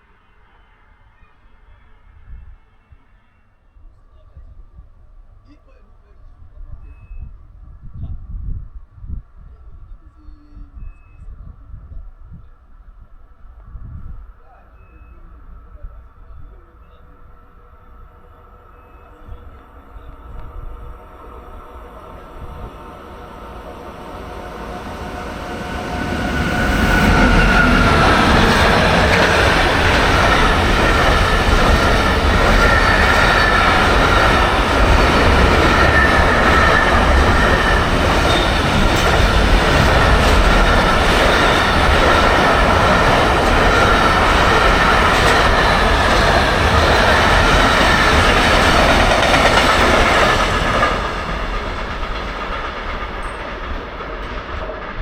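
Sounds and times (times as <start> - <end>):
train passing: 13.0 - 55.0
high whine: 18.6 - 54.1.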